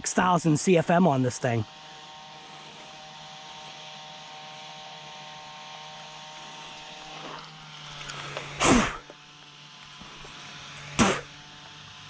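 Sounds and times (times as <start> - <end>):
motor cooling fans humming: 0.0 - 12.0
spit sizzling on hot motor: 0.0 - 12.0.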